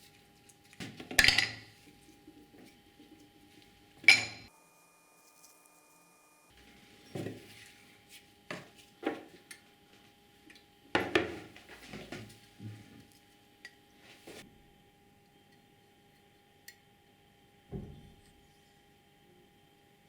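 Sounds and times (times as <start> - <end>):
metal tools clinking: 4.0 - 4.5.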